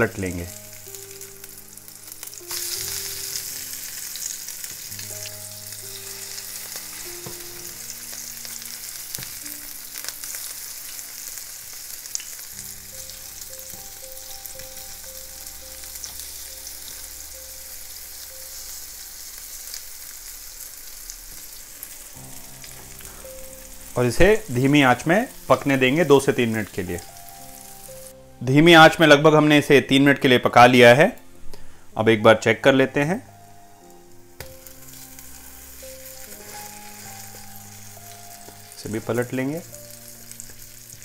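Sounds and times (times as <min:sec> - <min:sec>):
fritters sizzling in oil: 0:00.0 - 0:28.2, 0:34.3 - 0:41.0.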